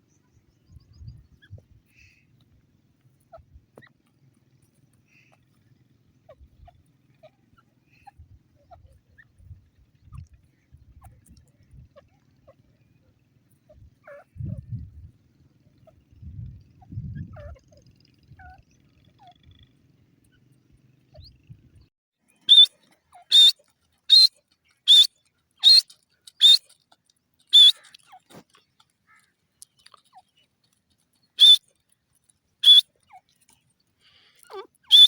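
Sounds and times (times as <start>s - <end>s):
shrill bird calls: 22.4s - 26.8s, 27.5s - 28.3s, 31.4s - 31.7s, 32.6s - 33.4s, 34.1s - 35.0s.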